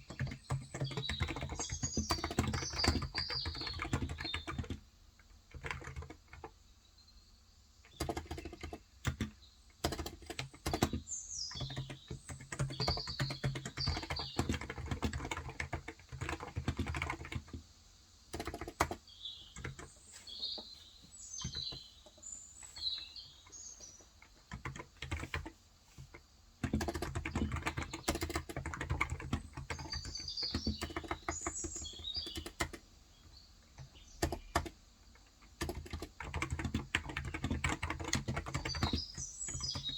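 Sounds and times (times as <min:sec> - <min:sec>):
keyboard typing: 0:00.0 - 0:06.6, 0:07.8 - 0:17.6, 0:18.3 - 0:20.0, 0:21.4 - 0:21.9, 0:22.6 - 0:32.9, 0:33.8 - 0:39.9
small birds chirping: 0:00.0 - 0:39.9.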